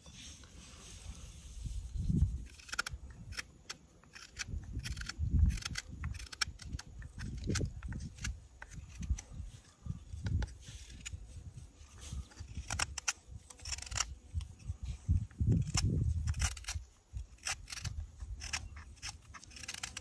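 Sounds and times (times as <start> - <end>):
knife cutting wood: 2.3 - 9.4, 12.2 - 14.5, 15.2 - 20.0.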